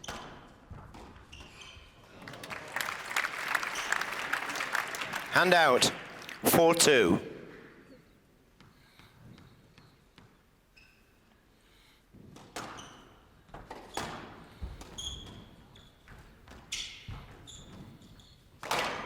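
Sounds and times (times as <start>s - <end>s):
shoes squeaking on court floor: 0.0s - 2.1s, 12.6s - 14.2s, 14.9s - 18.5s.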